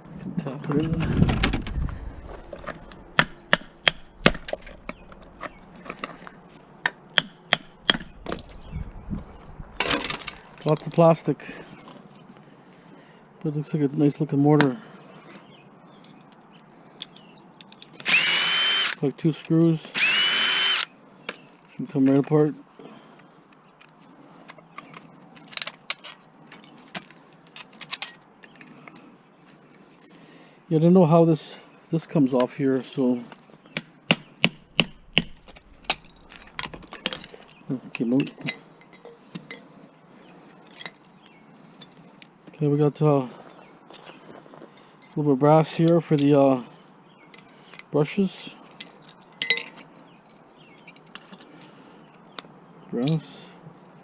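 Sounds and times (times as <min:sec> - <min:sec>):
metallic clicks and clinks: 0:01.4 - 0:06.2, 0:07.3 - 0:08.7, 0:09.8 - 0:12.0, 0:24.8 - 0:29.1, 0:33.8 - 0:39.6.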